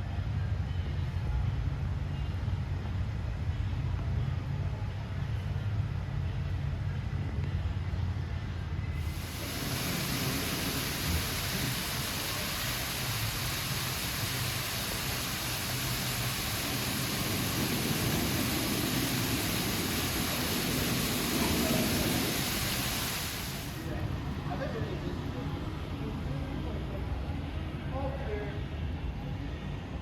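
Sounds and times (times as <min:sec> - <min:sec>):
splashing falling water: 0:09.0 - 0:23.9.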